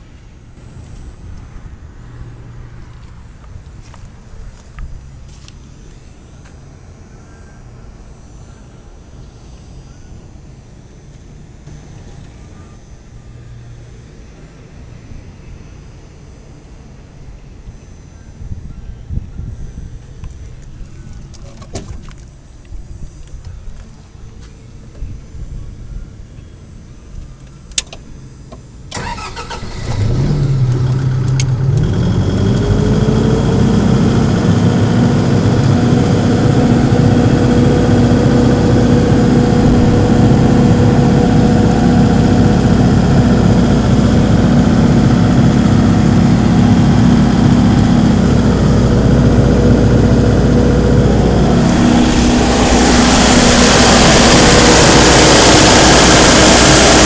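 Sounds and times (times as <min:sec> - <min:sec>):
diesel engine starting and running: 0:00.0 - 0:07.0, 0:28.9 - 0:57.0.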